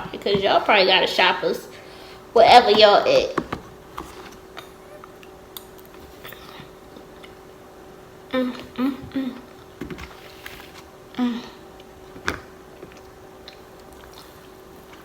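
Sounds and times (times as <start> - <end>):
person chewing: 4.0 - 7.5, 11.7 - 15.0.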